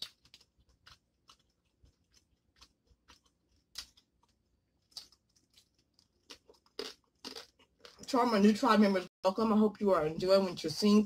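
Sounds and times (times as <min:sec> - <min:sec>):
close-miked chewing: 0:00.0 - 0:08.1.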